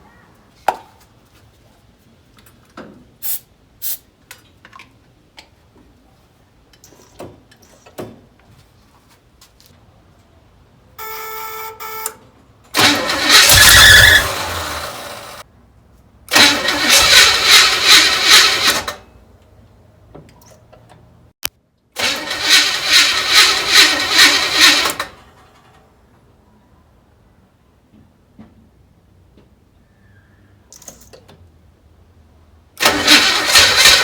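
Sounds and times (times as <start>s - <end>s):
engine cranking by starter: 12.7s - 15.4s, 16.3s - 19.1s, 22.0s - 25.6s, 32.8s - 34.0s.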